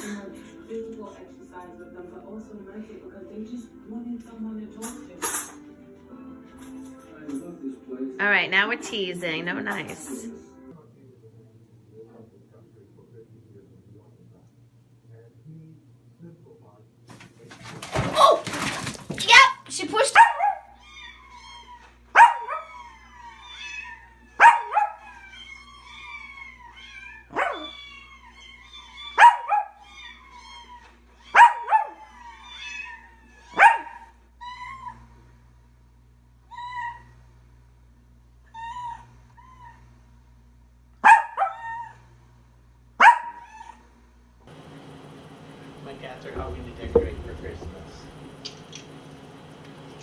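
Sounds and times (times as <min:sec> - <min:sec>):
pet animal sharp cry: 0:23.5 - 0:30.6.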